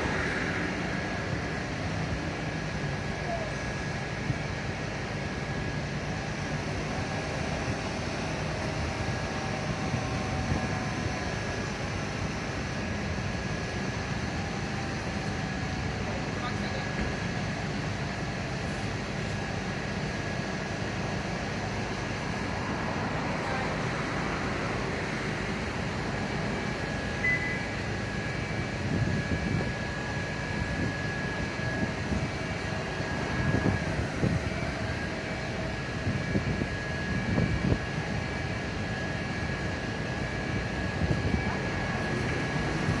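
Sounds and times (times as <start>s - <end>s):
faint steady whine: 0.0s - 43.0s
traffic and engine rumble: 0.0s - 43.0s
short high beep: 27.2s - 27.7s.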